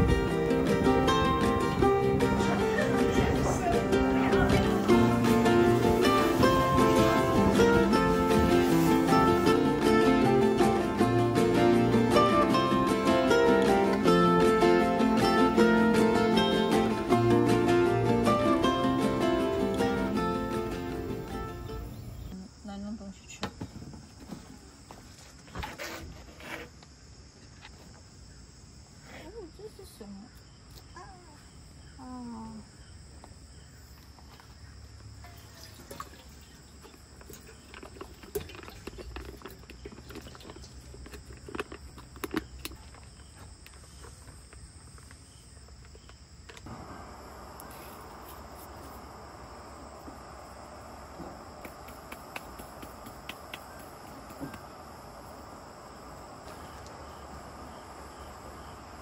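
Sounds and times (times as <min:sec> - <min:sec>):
steady hiss: 0:00.0 - 0:22.3, 0:46.6 - 0:59.0
insects chirring: 0:00.0 - 0:59.0.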